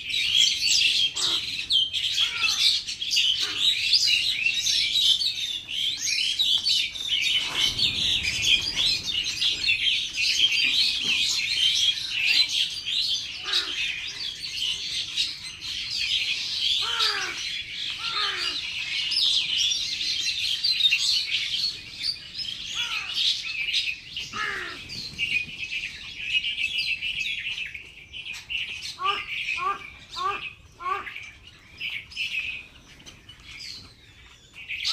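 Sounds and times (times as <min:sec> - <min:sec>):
lower falling bird calls: 0:00.0 - 0:34.9
small birds chirping: 0:00.0 - 0:34.9.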